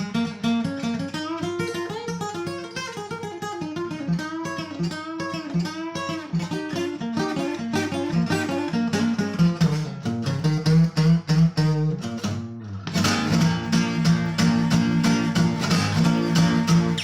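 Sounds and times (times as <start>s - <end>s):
rhythmic instrumental music: 7.7s - 17.0s.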